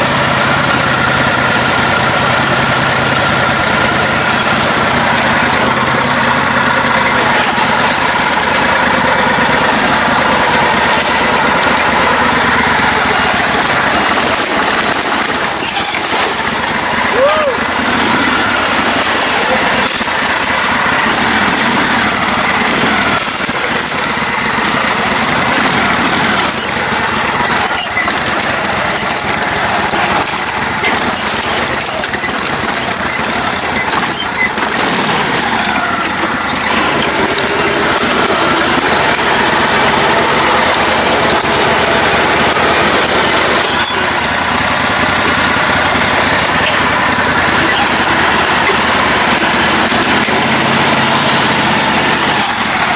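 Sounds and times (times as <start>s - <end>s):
lawn mower engine running: 0.0s - 52.9s.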